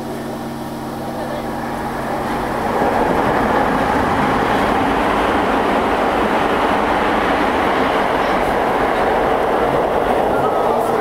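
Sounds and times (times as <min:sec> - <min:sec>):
electric train running: 0:00.0 - 0:11.0
wheels on rail: 0:00.0 - 0:11.0.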